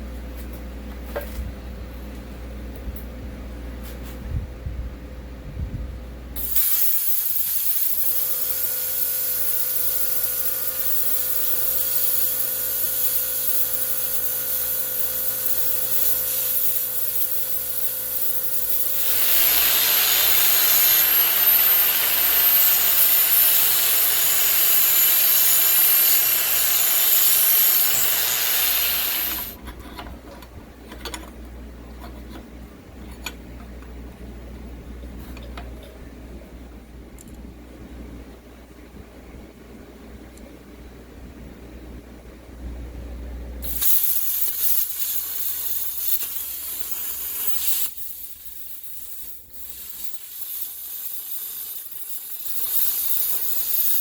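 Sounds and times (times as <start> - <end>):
angle grinder grinding metal: 6.4 - 29.6.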